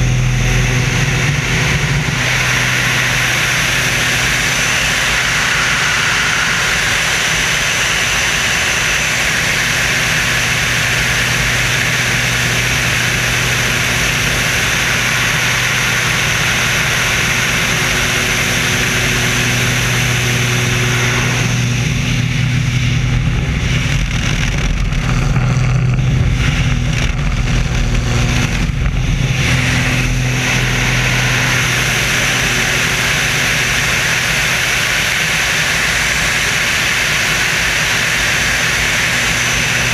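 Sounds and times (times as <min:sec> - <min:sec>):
airplane engine drone: 0:00.0 - 0:39.9
rushing air hiss: 0:02.2 - 0:08.8.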